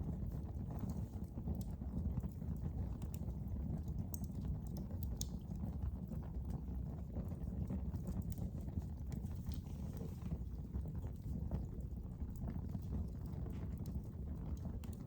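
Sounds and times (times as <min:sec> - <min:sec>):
fire crackling in a fireplace: 0:00.0 - 0:15.0.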